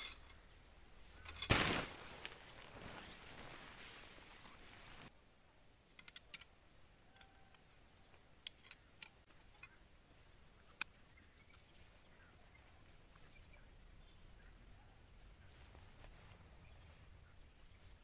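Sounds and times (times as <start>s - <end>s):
tent poles clicking together: 5.9s - 9.8s.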